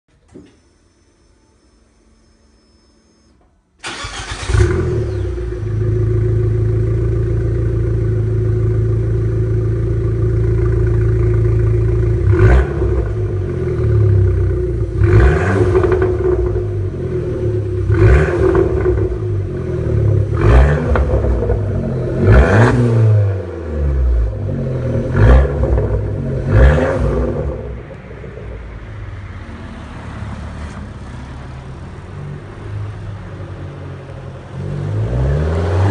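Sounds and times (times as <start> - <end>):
engine revving: 3.8 - 30.0, 34.6 - 35.9
car engine starting and idling: 3.8 - 35.9.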